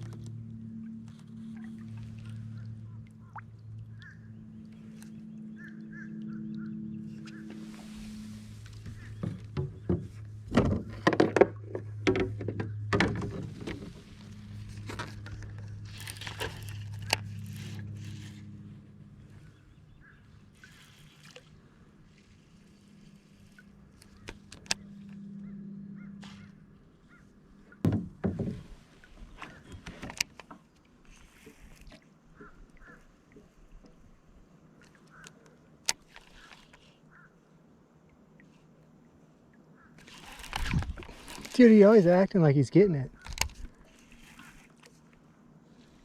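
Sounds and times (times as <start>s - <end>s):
low engine drone: 0.0s - 28.7s
knocks against plastic kayak hull: 27.8s - 28.7s.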